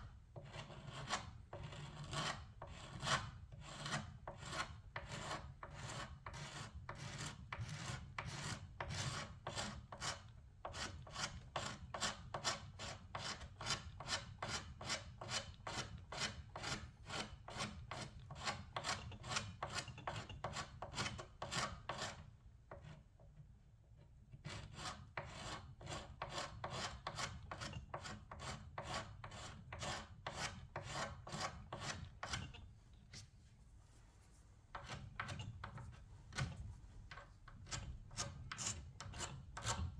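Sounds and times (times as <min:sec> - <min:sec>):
hand rubbing wooden surface: 0:31.7 - 0:38.8.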